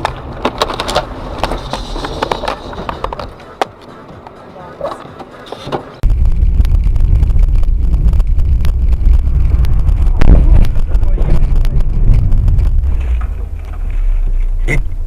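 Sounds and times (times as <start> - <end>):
vehicle rumbling: 0.0 - 15.0
wind buffeting microphone: 6.0 - 15.0.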